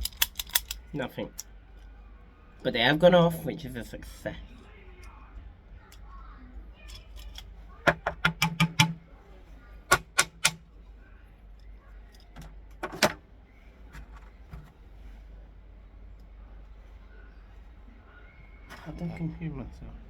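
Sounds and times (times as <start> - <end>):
toy cap gun clicking: 0.0 - 0.8.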